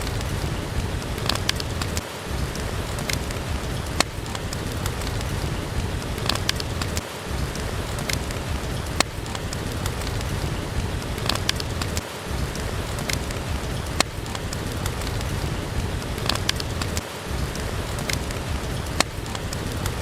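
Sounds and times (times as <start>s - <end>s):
steady rain: 0.0s - 20.0s
wood fire crackling and popping: 0.0s - 20.0s.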